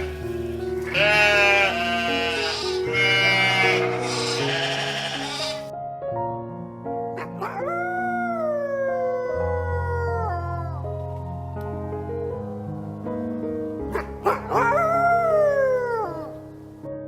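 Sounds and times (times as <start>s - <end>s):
animal calls: 0.0s - 5.7s, 13.8s - 16.4s
background music: 0.0s - 17.0s
long animal call falling in pitch: 7.2s - 10.9s, 13.9s - 16.4s.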